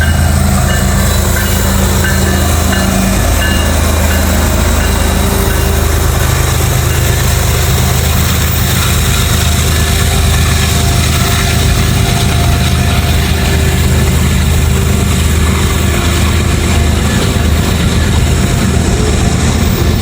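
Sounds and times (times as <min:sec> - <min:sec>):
diesel locomotive engines droning: 0:00.0 - 0:20.0.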